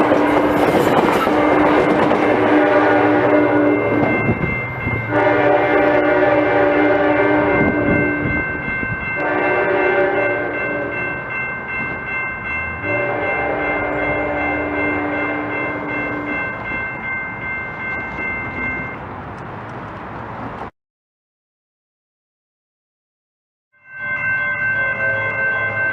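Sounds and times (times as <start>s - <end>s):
train horn blasts: 0.0s - 8.6s, 9.2s - 11.2s, 12.8s - 16.6s
steady high tones: 0.0s - 19.1s
train rumble: 0.0s - 20.7s.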